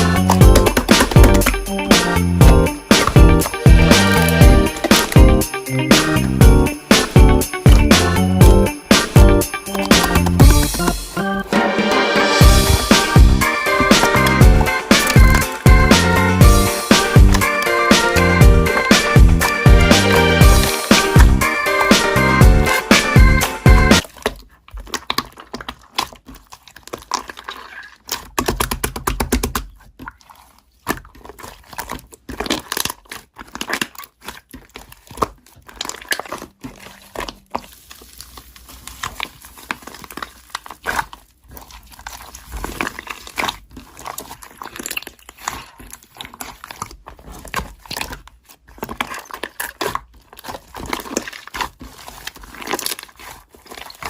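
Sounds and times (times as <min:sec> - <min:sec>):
crinkling and rustling: 0:00.0 - 0:11.2, 0:24.0 - 0:54.0.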